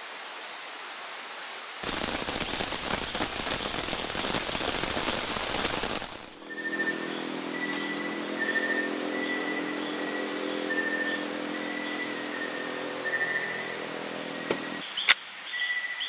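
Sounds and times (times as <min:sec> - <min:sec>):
steady hiss: 0:01.8 - 0:06.4.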